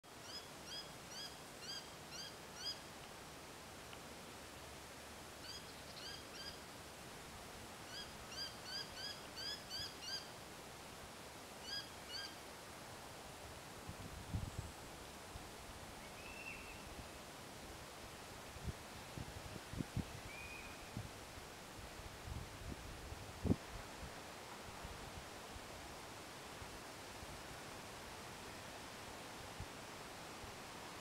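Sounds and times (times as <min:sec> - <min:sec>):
outdoor background hiss: 0:00.0 - 0:31.0
bird calling: 0:05.4 - 0:06.6, 0:07.9 - 0:10.3, 0:11.6 - 0:12.4.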